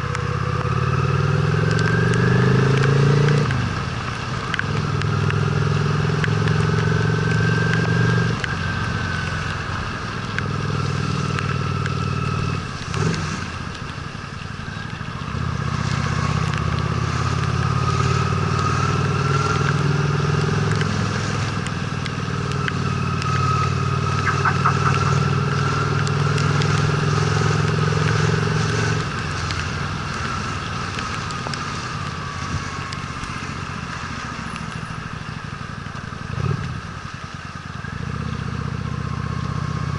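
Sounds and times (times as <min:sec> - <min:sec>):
motorcycle engine running: 0:22.3 - 0:29.4.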